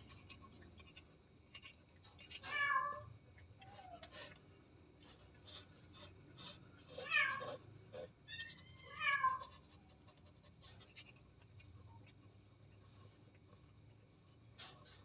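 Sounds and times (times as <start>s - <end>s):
cat meowing: 2.4s - 4.1s, 6.9s - 9.6s.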